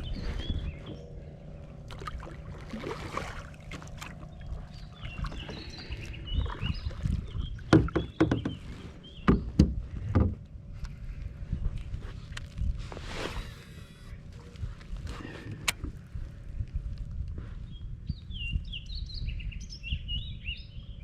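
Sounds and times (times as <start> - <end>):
birds chirping: 0.0 - 10.6
handling noise on plastic kayak: 3.0 - 17.4.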